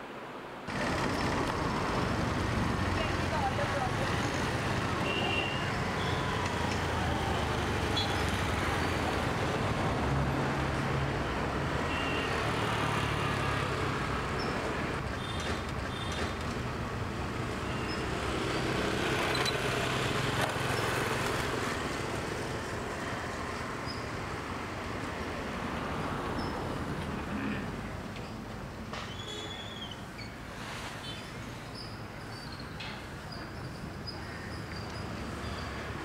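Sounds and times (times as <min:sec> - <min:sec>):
road noise: 0:00.0 - 0:36.0
passing vehicle engines hum: 0:00.7 - 0:29.0.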